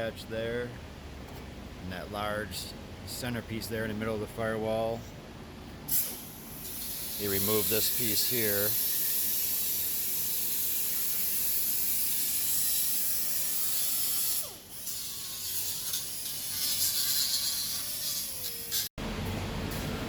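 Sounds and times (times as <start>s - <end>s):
rattling hiss: 5.9s - 10.1s.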